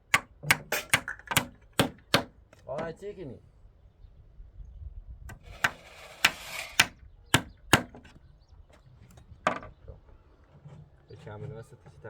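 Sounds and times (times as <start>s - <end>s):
tool striking wood: 0.1s - 2.9s, 5.3s - 8.1s.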